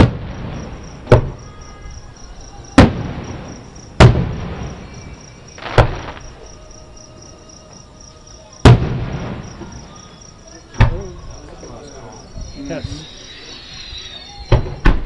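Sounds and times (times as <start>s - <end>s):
distant firework booms: 0.0s - 1.6s, 2.7s - 6.6s, 8.6s - 10.1s
crickets chirping: 0.1s - 15.0s.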